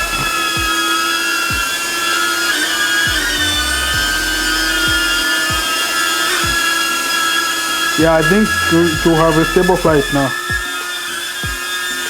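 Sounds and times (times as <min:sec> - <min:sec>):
music with kick-drum beat: 0:00.0 - 0:00.9, 0:01.5 - 0:01.7, 0:03.0 - 0:05.7, 0:06.4 - 0:06.8, 0:08.0 - 0:10.8, 0:11.4 - 0:11.7
drone propellers whining: 0:00.0 - 0:12.0.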